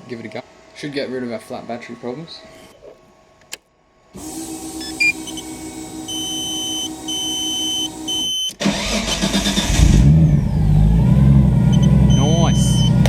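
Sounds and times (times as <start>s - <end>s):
electrical hum: 0.0s - 13.0s
long high beeps: 4.8s - 8.5s, 11.7s - 13.0s
car engine cranking and firing: 8.6s - 13.0s
short beeps: 11.7s - 13.0s.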